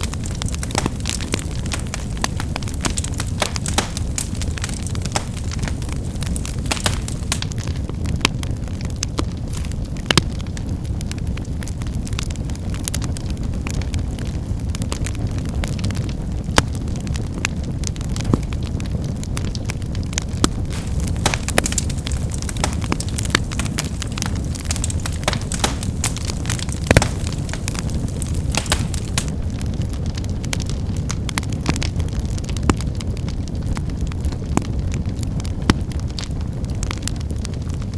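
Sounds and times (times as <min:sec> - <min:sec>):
firewood snapping: 0:00.0 - 0:07.8, 0:09.5 - 0:10.2, 0:20.4 - 0:29.4
wood fire rumbling and crackling: 0:00.0 - 0:37.9.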